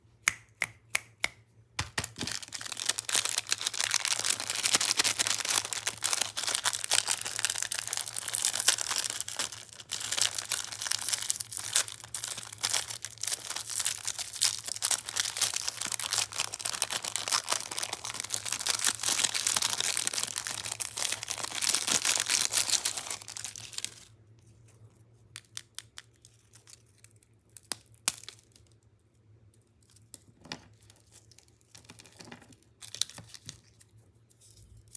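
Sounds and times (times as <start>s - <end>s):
plastic wrappers crinkling: 1.9s - 24.1s, 31.2s - 33.8s.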